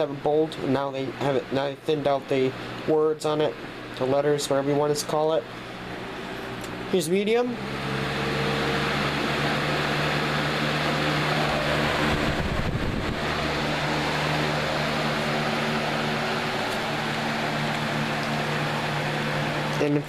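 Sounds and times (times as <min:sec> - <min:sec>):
box fan running: 0:00.0 - 0:20.0.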